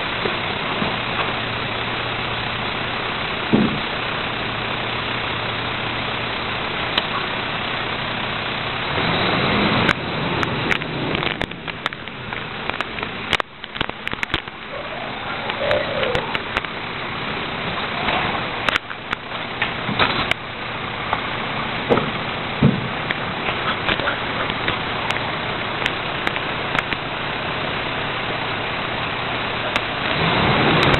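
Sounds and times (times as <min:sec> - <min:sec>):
garbage truck running: 0:00.0 - 0:30.9
sharp clicks and knocks: 0:03.5 - 0:03.9, 0:09.9 - 0:14.8, 0:15.5 - 0:16.8, 0:18.0 - 0:20.5, 0:21.9 - 0:27.1.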